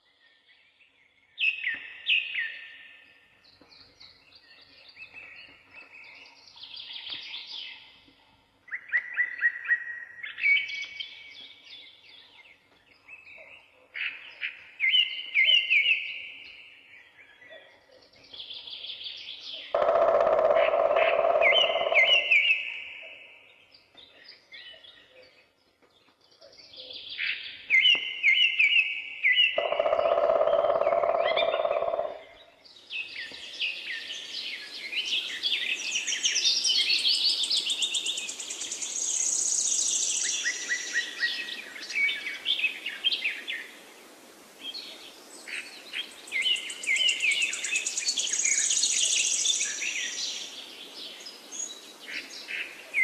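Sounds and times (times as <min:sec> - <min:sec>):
songbirds chirping and trilling: 0:00.0 - 0:53.0
background hiss: 0:32.2 - 0:53.0.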